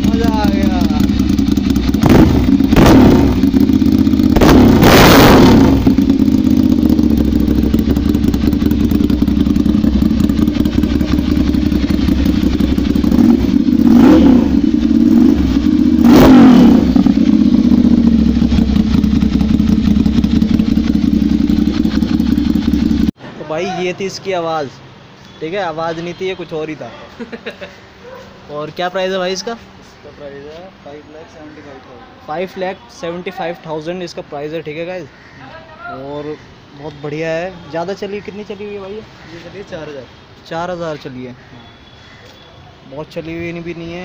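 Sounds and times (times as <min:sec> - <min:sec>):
motorcycle engine idling: 0:00.0 - 0:04.8, 0:05.5 - 0:23.2
motorcycle engine revving: 0:00.0 - 0:23.2.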